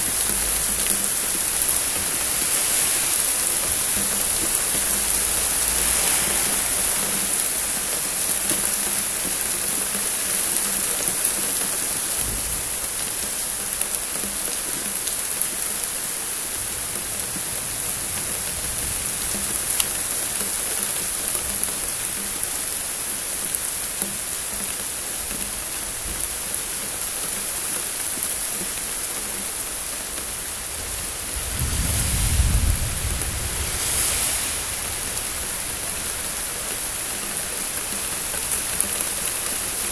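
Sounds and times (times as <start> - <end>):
thunder rumbling: 0.0 - 8.4, 16.6 - 20.7, 30.5 - 37.0
rain pattering: 0.0 - 39.9.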